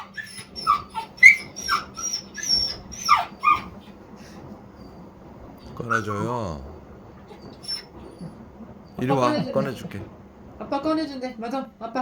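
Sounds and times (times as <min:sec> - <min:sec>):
dog whimpering: 0:00.0 - 0:04.4, 0:07.3 - 0:08.4.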